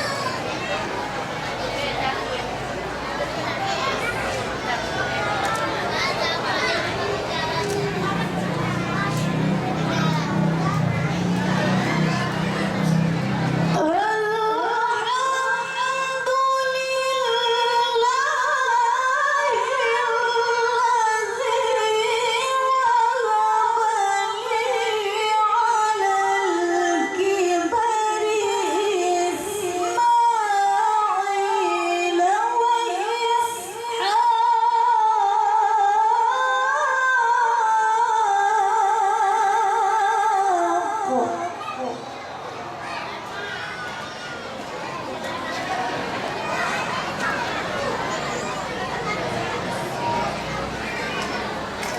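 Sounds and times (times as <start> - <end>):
woman chanting recitation: 12.0 - 42.2.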